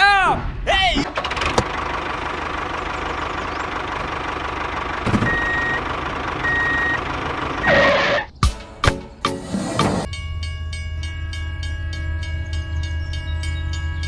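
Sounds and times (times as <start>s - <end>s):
vehicle engine running: 1.1s - 8.4s
reversing alarm beeps: 5.2s - 5.8s, 6.4s - 7.0s.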